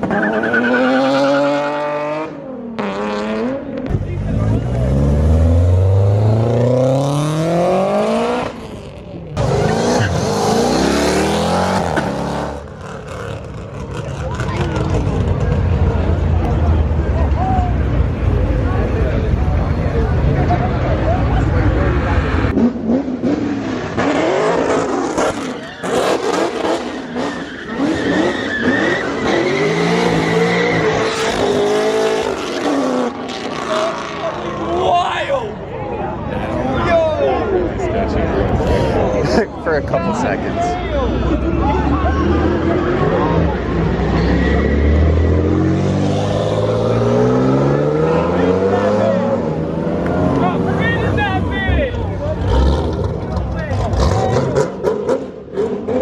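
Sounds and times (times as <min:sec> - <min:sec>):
car engine revving: 0:00.0 - 0:17.1, 0:21.6 - 0:34.8
car engine accelerating hard: 0:00.0 - 0:17.2, 0:40.5 - 0:56.0.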